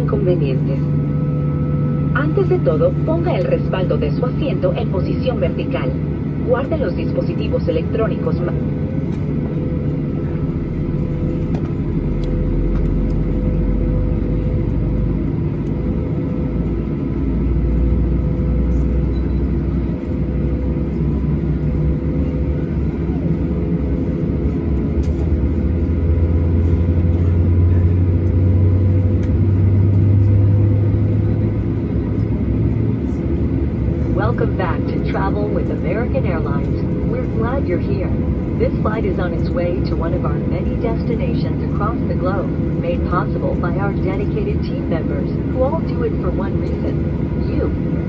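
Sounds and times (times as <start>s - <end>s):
aircraft cabin hum: 0.0s - 48.0s
deep rumble: 0.0s - 48.0s.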